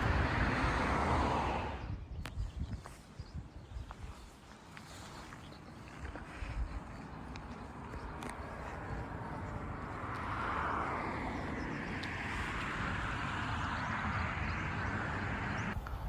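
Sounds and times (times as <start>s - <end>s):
passing vehicle rushing: 0.0s - 2.0s, 8.6s - 15.8s.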